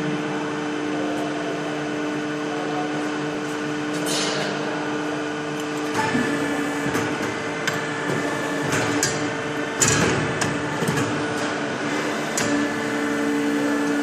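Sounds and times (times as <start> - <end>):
machine motor hum: 0.0 - 14.0.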